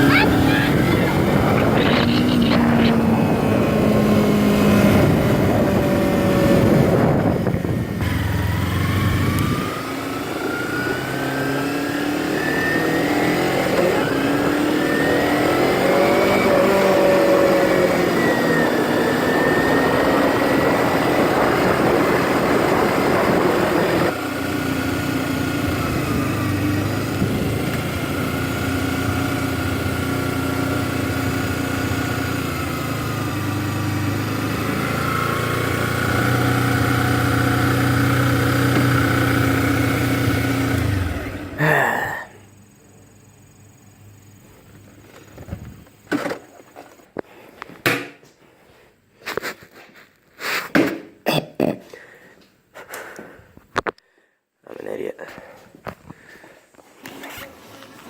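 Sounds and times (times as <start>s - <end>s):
motorcycle engine revving: 0.0s - 42.1s.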